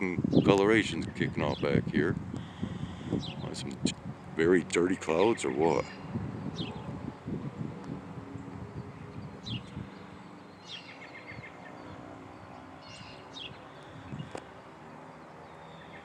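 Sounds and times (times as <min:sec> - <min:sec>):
birds calling: 0:00.0 - 0:07.3, 0:08.2 - 0:16.0.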